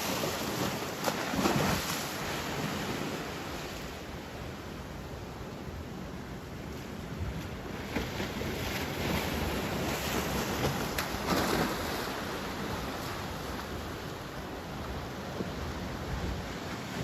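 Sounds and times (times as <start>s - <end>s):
wave breaking on beach: 0.0s - 3.8s
wind rumbling on microphone: 0.0s - 17.0s.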